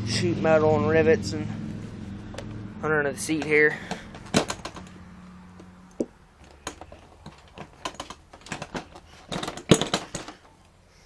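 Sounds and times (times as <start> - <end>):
clicks and knocks of handled panels: 3.3 - 5.0, 5.6 - 10.6.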